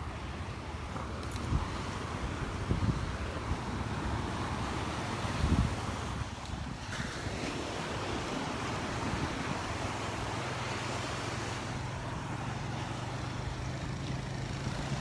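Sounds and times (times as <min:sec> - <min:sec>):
wind buffeting microphone: 0:00.0 - 0:12.1
surf washing on beach: 0:00.0 - 0:15.0.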